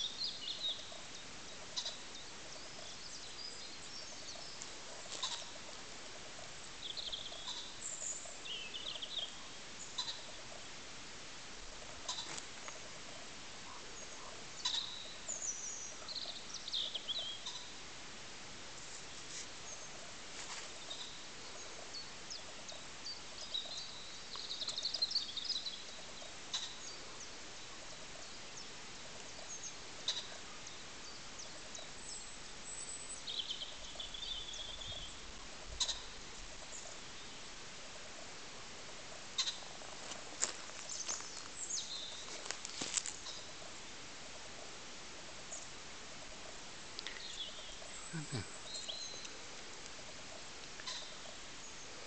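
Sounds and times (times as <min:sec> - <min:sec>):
bird warbling call: 0:00.0 - 0:10.5, 0:11.8 - 0:12.4, 0:13.7 - 0:17.7, 0:31.4 - 0:37.0, 0:39.4 - 0:39.8, 0:50.8 - 0:51.4
birds chirping: 0:00.0 - 0:10.8, 0:11.6 - 0:17.9, 0:18.7 - 0:52.0
outdoor background hiss: 0:00.0 - 0:52.0.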